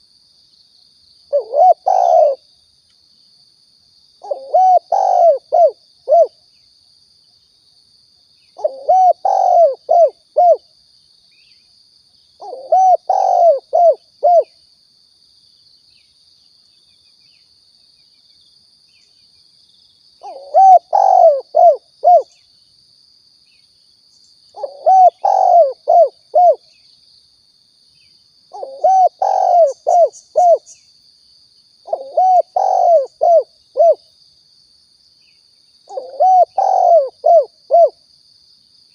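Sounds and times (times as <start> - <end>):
dove cooing: 1.3 - 2.4, 4.2 - 6.4, 8.6 - 10.6, 12.4 - 14.5, 20.2 - 22.4, 24.6 - 26.6, 28.5 - 30.7, 31.9 - 34.0, 35.9 - 38.0.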